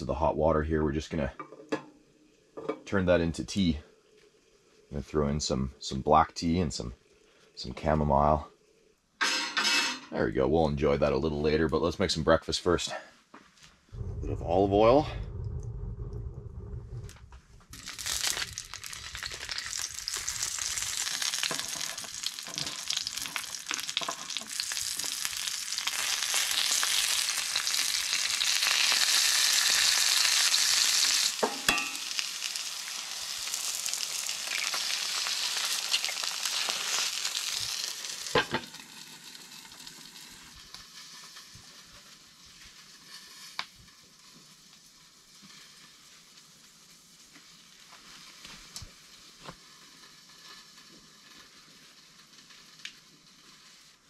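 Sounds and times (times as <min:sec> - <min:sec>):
food sizzling in a skillet: 0:17.7 - 0:54.0.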